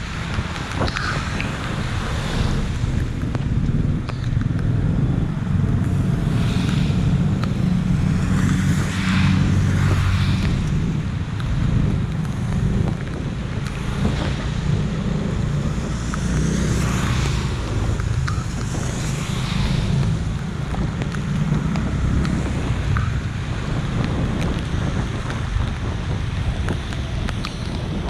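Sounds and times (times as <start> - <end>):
traffic rumble: 0.0 - 28.0.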